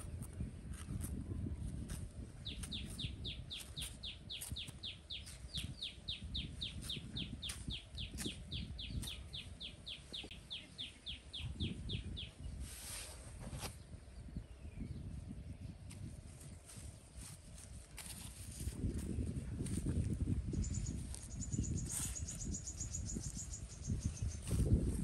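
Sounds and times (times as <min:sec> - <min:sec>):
knife working dry soil: 0:00.0 - 0:11.0, 0:12.4 - 0:13.9, 0:15.8 - 0:25.0.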